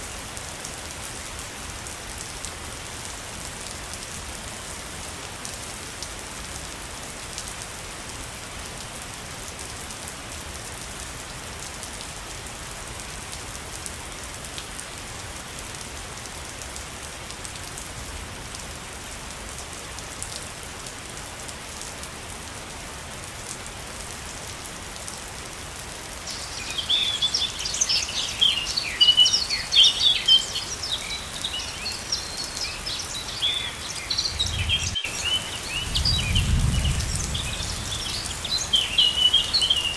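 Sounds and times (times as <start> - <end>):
falling water rushing: 26.0 - 39.9
birds chirping: 26.3 - 39.9.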